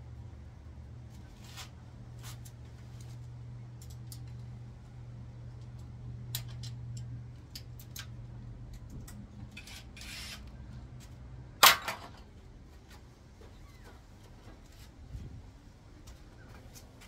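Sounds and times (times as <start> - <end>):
low steady hum: 0.0 - 17.0
metal scrape: 9.6 - 10.5.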